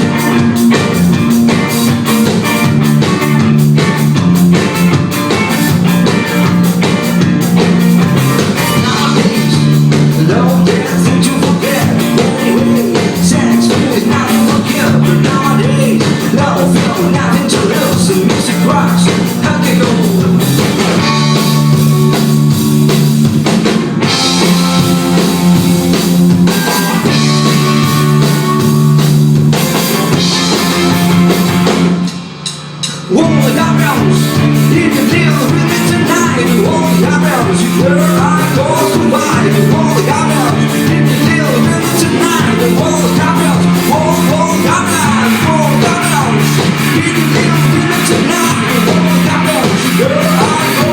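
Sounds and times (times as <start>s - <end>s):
rock band playing live: 0.0s - 50.9s.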